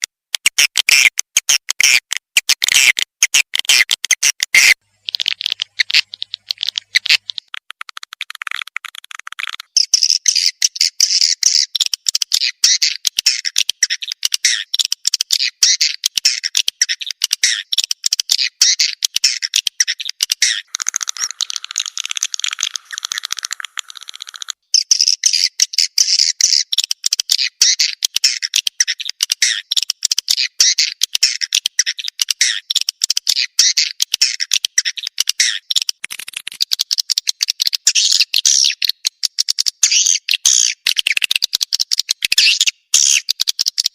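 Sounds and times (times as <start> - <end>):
swiftlet twittering chirps: 19.8 - 25.5.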